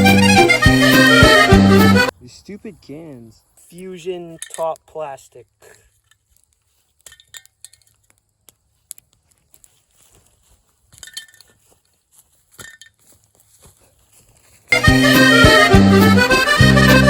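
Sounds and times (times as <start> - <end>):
loud accordion music: 0.0 - 2.1, 14.7 - 17.0
light metallic clinks: 3.6 - 4.9, 6.9 - 8.2, 10.9 - 11.7, 12.5 - 13.1.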